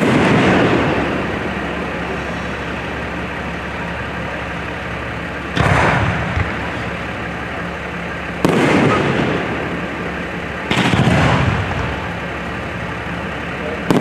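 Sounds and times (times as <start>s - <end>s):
firework shell booming: 0.0s - 4.2s, 5.2s - 13.0s, 13.8s - 14.0s
firework shell rumbling: 0.0s - 14.0s
low background hum: 0.0s - 14.0s.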